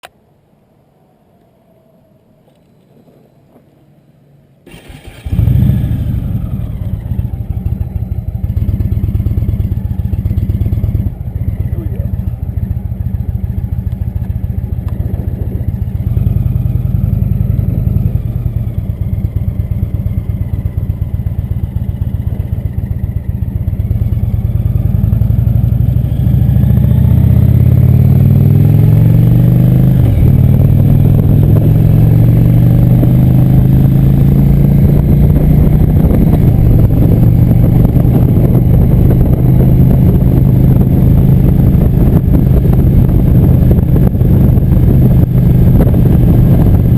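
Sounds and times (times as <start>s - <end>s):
motorcycle engine accelerating: 4.6s - 46.9s.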